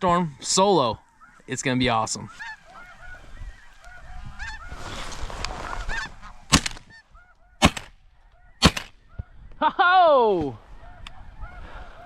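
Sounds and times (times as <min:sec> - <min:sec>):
snow goose calls: 0:00.8 - 0:07.8
shotgun blasts: 0:06.5 - 0:06.9, 0:07.6 - 0:08.0, 0:08.6 - 0:09.0.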